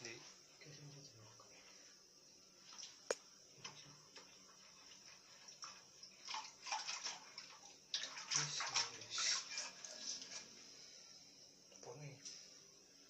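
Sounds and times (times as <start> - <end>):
water splashing and running: 4.6 - 10.5.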